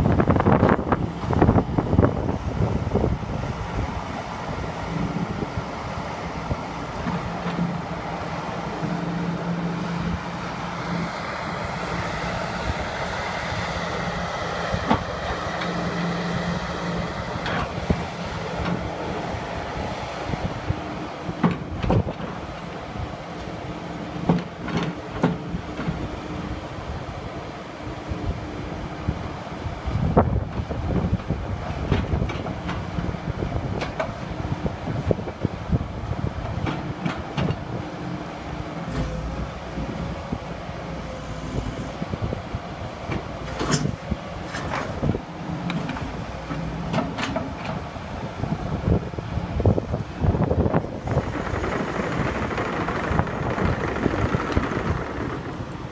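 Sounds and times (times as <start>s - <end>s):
wind noise on microphone: 0.0s - 7.9s, 8.8s - 23.2s, 24.2s - 37.9s, 41.5s - 55.9s
excavator engine drone: 0.0s - 55.9s
machine clunks and knocks: 21.4s - 22.4s, 24.2s - 26.0s, 46.9s - 47.8s
machine engine running: 49.7s - 55.9s.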